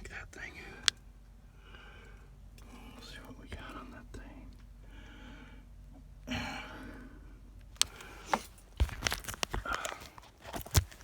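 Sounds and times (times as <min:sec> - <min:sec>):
clicks knocks and scrapes of connectors: 0:07.8 - 0:11.0.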